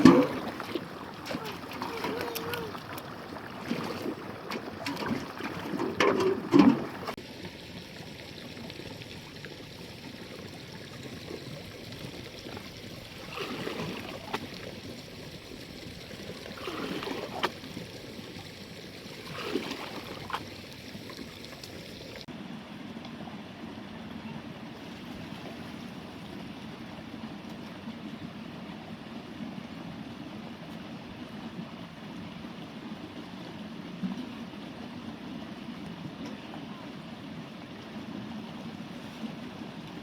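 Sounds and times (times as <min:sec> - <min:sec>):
trickle of running water: 0:00.0 - 0:22.3.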